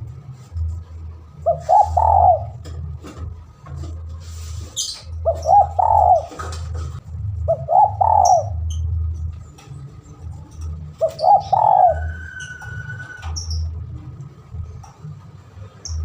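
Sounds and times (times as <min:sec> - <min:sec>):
low hum: 0:00.0 - 0:16.0
birds chirping: 0:01.4 - 0:02.7, 0:04.6 - 0:06.7, 0:07.4 - 0:14.0
dove cooing: 0:01.4 - 0:02.9, 0:05.2 - 0:08.9, 0:10.9 - 0:13.5.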